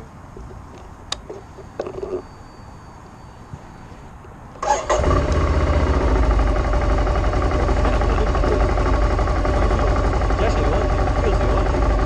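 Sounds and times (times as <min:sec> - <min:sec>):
motorcycle engine cranking and idling: 0:04.6 - 0:12.0.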